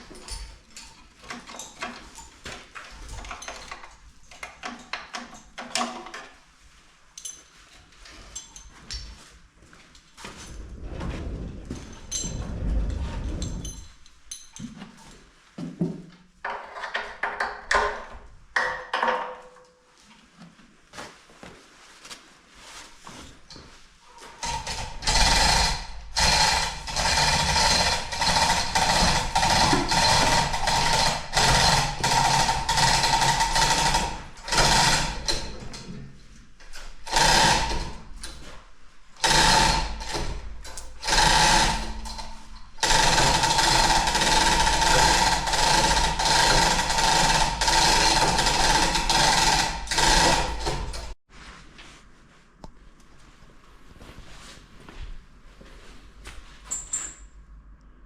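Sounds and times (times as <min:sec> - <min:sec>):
power tool whining: 0:41.0 - 0:51.2.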